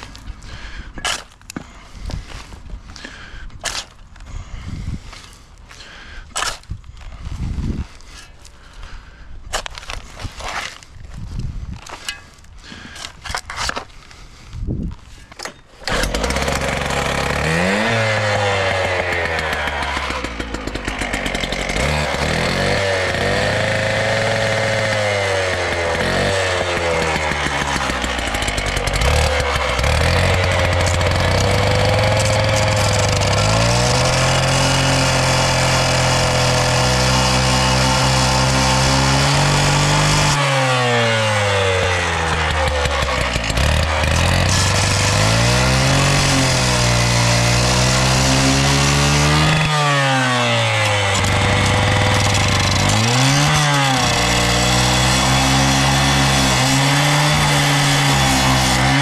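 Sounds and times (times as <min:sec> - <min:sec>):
engine revving: 0:15.8 - 0:59.0.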